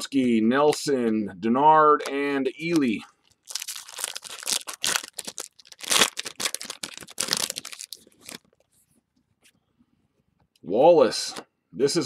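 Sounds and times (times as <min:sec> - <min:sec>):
card pack wrapper tearing and crinkling: 0:02.6 - 0:08.6.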